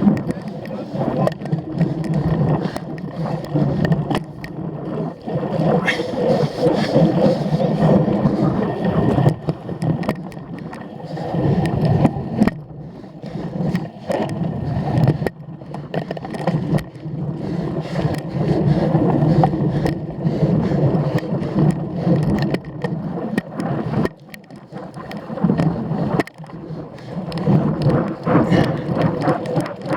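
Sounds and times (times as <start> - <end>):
bike rattling clicks and knocks: 0.0 - 10.8
bike tyre and frame rumble: 0.0 - 29.9.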